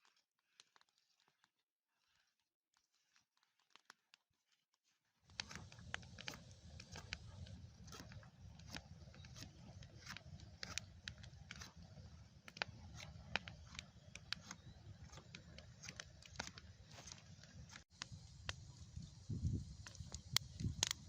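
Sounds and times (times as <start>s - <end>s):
faint irregular clicks: 5.3s - 18.8s, 19.4s - 21.0s.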